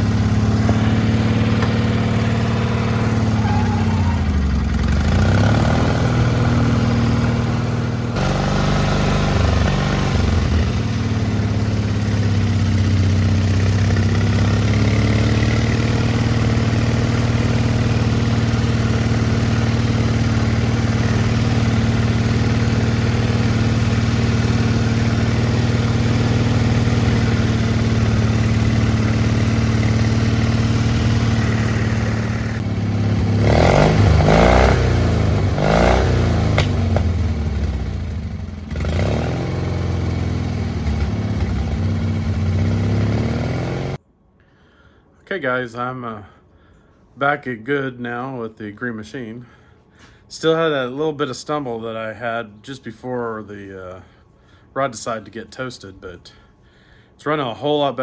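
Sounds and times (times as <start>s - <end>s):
small mower engine idling: 0.0s - 44.0s.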